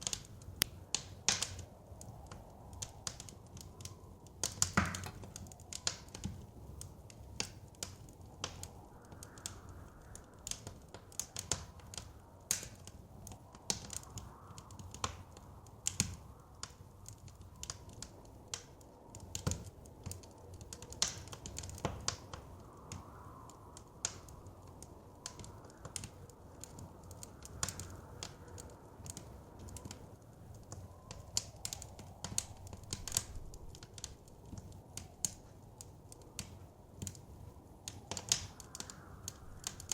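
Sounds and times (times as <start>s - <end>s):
soft wind: 0.0s - 39.9s
wood fire crackling: 0.0s - 39.9s.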